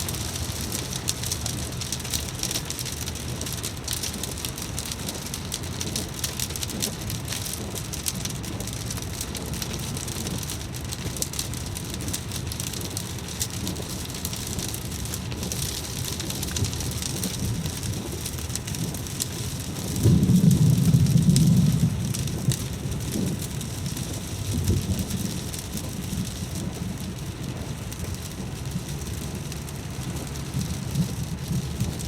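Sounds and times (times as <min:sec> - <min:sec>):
steady rain falling: 0:00.0 - 0:32.0
low rumble: 0:15.5 - 0:32.0.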